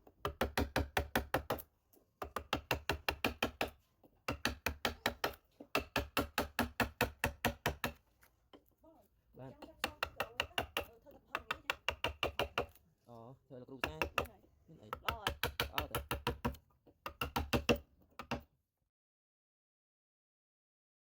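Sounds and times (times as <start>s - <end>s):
mallet tapping chisel into wood: 0.1s - 1.6s, 2.2s - 8.7s, 9.5s - 12.8s, 13.8s - 18.5s.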